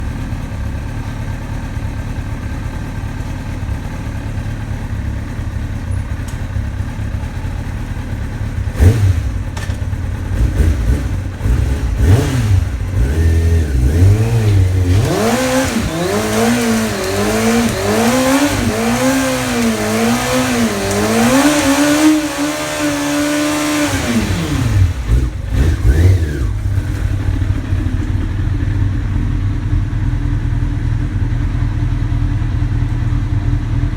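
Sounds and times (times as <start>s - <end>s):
motorcycle engine revving: 0.0s - 33.9s
tyre burnout hiss: 14.4s - 25.4s.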